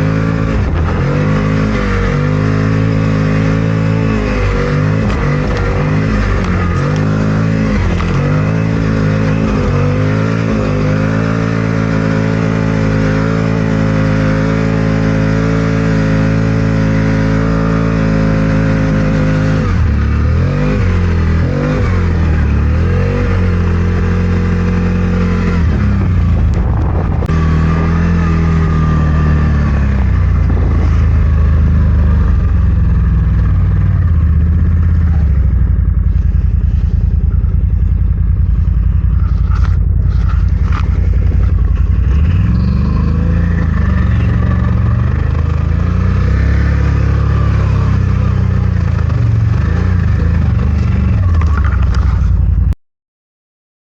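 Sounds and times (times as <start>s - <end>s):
atv engine running under load: 0.0s - 52.8s.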